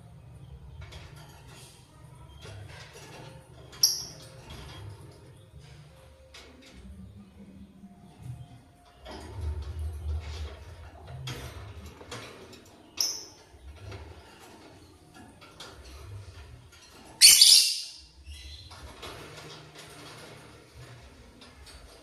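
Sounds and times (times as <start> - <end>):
lovebird harsh screech: 17.2 - 18.0
lovebird chirp: 17.2 - 18.7.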